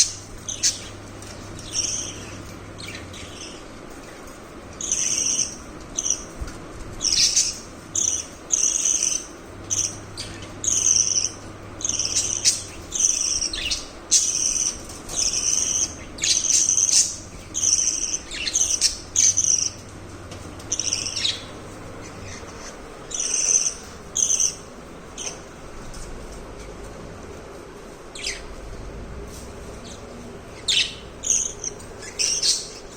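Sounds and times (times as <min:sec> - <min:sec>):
budgerigars chirping: 0:00.0 - 0:01.0, 0:01.6 - 0:03.7, 0:04.8 - 0:06.3, 0:07.0 - 0:19.8, 0:20.7 - 0:24.6, 0:30.6 - 0:32.9.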